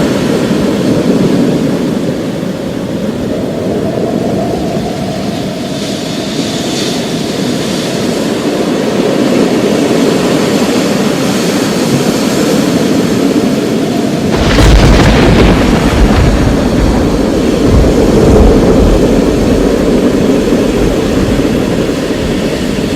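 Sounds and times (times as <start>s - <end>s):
low rumble of rolling thunder: 11.6s - 22.9s
loud thunderclap: 14.2s - 22.9s.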